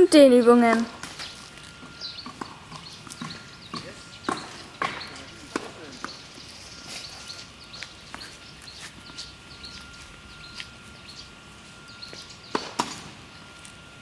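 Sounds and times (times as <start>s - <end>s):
birds chirping: 0.0s - 14.0s
sharp knocks: 2.2s - 6.2s.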